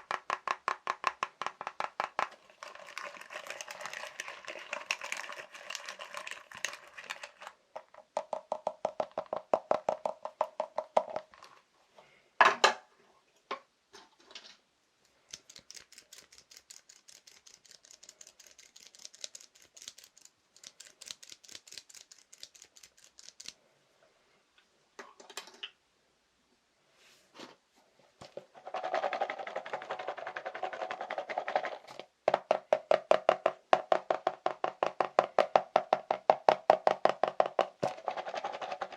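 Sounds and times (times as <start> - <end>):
fast tapping on objects: 0.0 - 4.1, 28.2 - 38.9.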